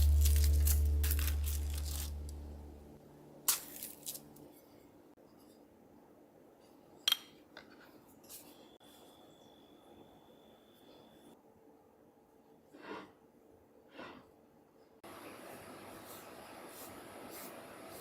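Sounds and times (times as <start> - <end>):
background music: 0.0 - 4.4.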